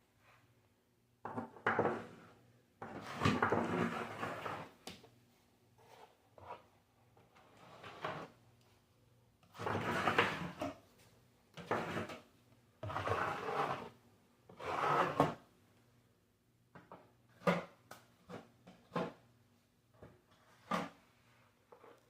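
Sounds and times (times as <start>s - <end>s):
taping knife scraping drywall: 2.9s - 4.8s, 9.6s - 10.7s, 11.6s - 15.4s.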